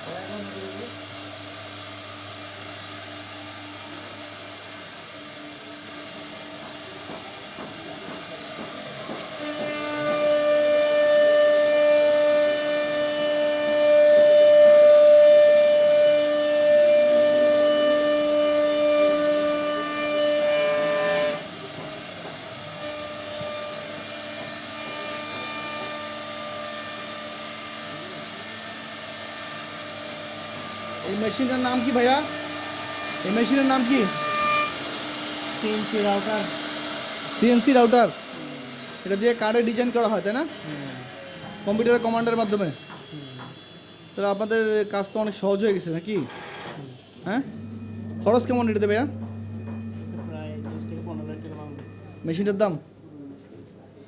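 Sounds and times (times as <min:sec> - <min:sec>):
router spindle whine: 0:20.5 - 0:52.5.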